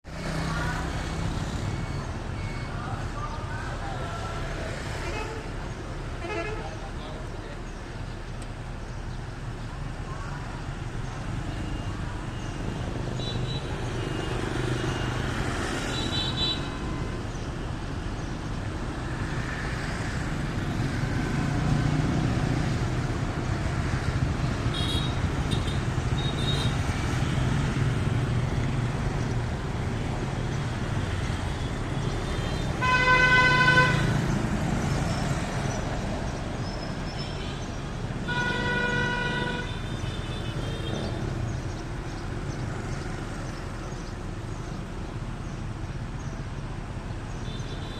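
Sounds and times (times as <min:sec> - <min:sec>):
road traffic rumble: 0:00.0 - 0:47.9
vehicle horn honks: 0:32.5 - 0:34.1.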